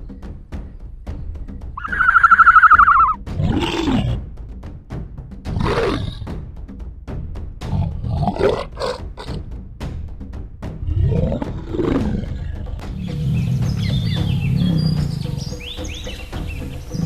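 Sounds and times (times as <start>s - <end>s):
background music: 0.0s - 17.0s
high rapidly pulsing call: 1.8s - 3.2s, 12.9s - 17.0s
large animal roaring: 3.4s - 4.2s, 5.5s - 6.3s, 7.7s - 9.4s, 10.8s - 15.4s.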